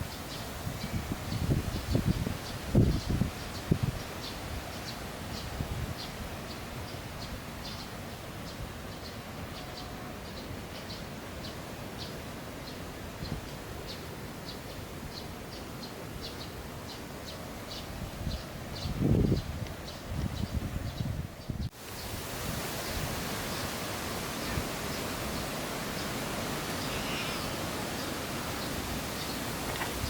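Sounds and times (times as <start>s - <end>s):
wind rumble on microphone: 0.0s - 4.7s, 5.3s - 7.4s, 17.7s - 26.6s, 28.6s - 30.0s.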